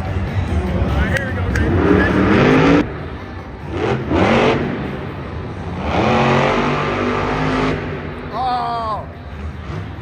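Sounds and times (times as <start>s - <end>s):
monster truck engine revving: 1.5s - 2.9s, 3.6s - 8.3s.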